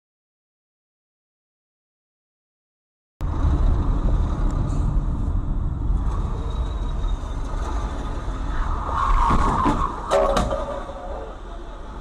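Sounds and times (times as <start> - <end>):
road noise: 3.2 - 12.0
vehicle engine rumble: 3.2 - 12.0.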